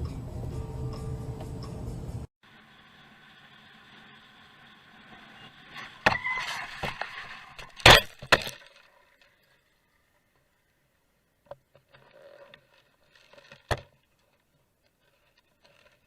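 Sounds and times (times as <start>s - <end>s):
metal scraping and crunching: 5.1s - 9.7s.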